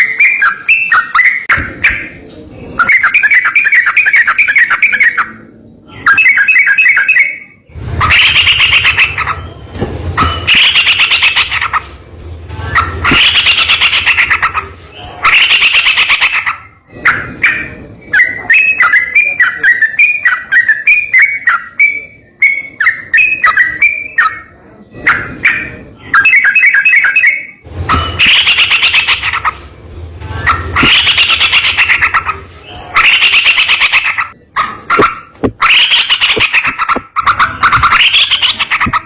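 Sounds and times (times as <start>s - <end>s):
bird singing trills: 0.0s - 11.9s, 12.7s - 24.7s.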